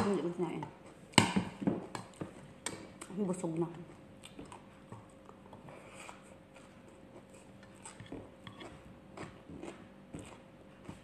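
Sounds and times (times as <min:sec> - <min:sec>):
crisp crunching of chewing: 0:04.2 - 0:11.0.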